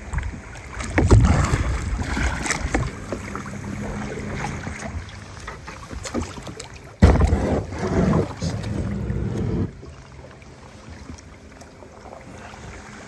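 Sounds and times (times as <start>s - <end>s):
wind rumble on microphone: 0.0s - 6.2s, 7.0s - 10.0s
paddle splashes: 0.0s - 13.0s.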